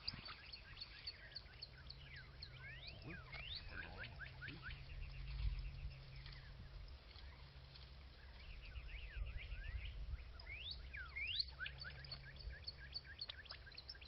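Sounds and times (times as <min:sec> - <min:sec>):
birds chirping and whistling: 0:00.0 - 0:14.0
low hum: 0:00.0 - 0:14.0.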